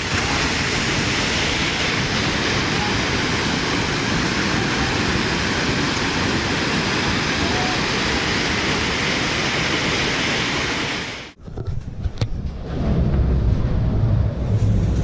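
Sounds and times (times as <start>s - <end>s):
flood water rushing: 0.0s - 11.4s
low wind rumble on microphone: 0.0s - 15.0s.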